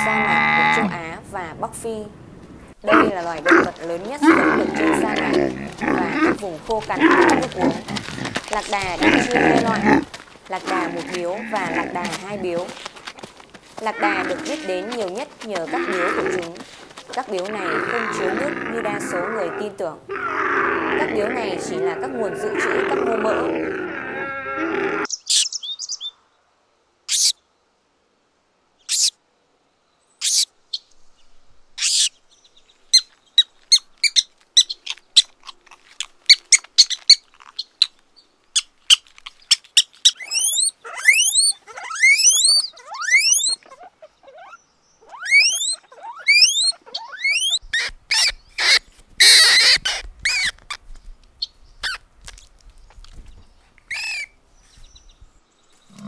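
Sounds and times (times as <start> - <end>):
rodents squeaking: 32.9 - 37.9, 38.6 - 50.7, 53.9 - 54.3.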